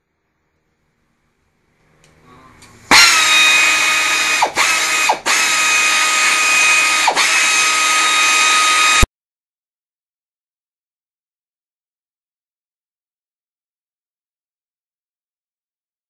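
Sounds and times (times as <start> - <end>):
air ratchet high whine: 2.9 - 9.1.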